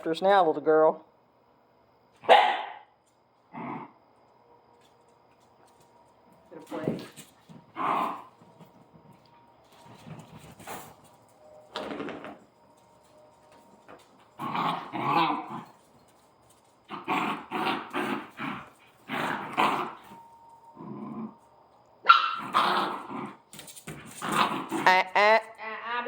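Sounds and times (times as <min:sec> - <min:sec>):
puppies growling while play-fighting: 0:03.4 - 0:04.0, 0:07.6 - 0:09.0, 0:14.3 - 0:16.0, 0:16.8 - 0:21.5, 0:22.4 - 0:24.9.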